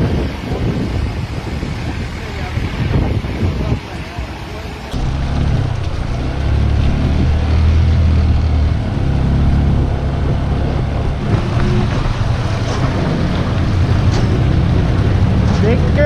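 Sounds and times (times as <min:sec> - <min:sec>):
wind and road noise: 0:00.0 - 0:16.0
motorcycle engine at low revs: 0:05.0 - 0:16.0.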